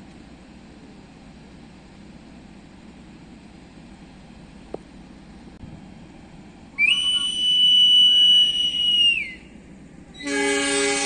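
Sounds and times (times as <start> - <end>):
high-pitched hand whistle blast: 6.8 - 9.4.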